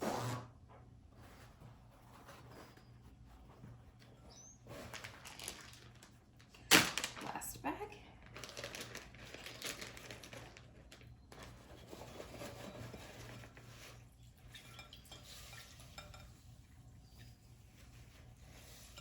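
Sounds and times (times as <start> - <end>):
paper towel rustling: 1.2 - 7.4, 8.3 - 14.0.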